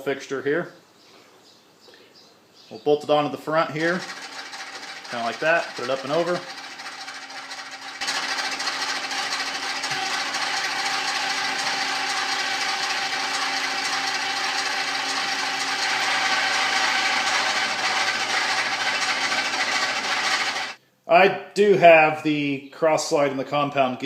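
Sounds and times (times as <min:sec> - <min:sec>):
pneumatic drill drilling metal: 0:03.8 - 0:20.8.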